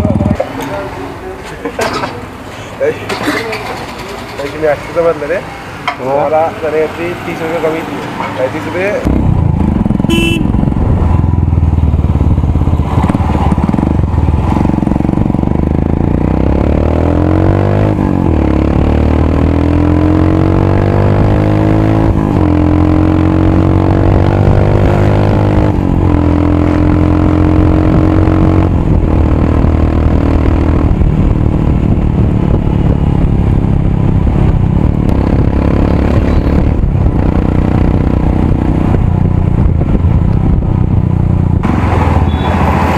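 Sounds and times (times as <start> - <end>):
motorcycle engine accelerating: 0.0 - 0.4, 9.0 - 42.9.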